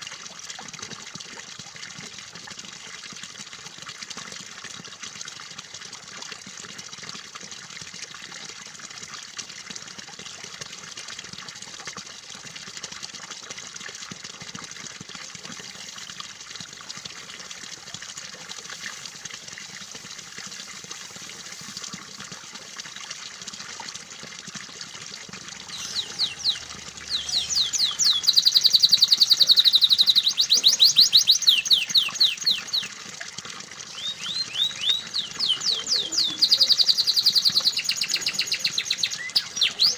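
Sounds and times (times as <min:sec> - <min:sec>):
water trickling: 0:00.0 - 0:39.9
canary singing: 0:25.7 - 0:32.9, 0:33.9 - 0:39.9.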